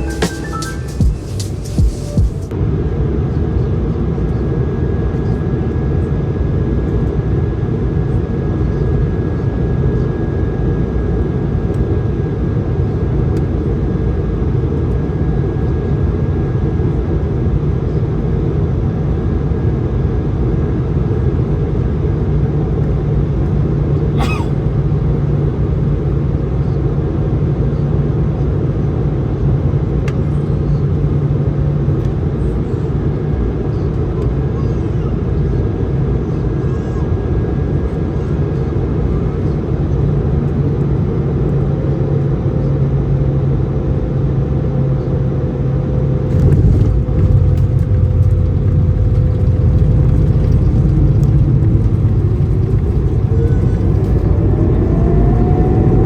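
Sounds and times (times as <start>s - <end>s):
airflow and engine noise in cabin: 0.0s - 56.0s
low hum: 46.1s - 56.0s.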